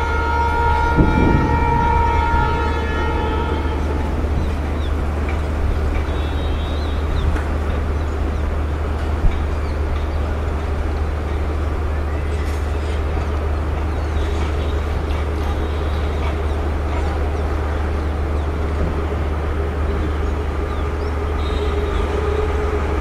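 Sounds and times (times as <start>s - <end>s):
freight train rumbling: 0.0s - 23.0s
wheels hissing on rail: 0.0s - 23.0s
wheels clicking over rail joints: 3.4s - 19.2s.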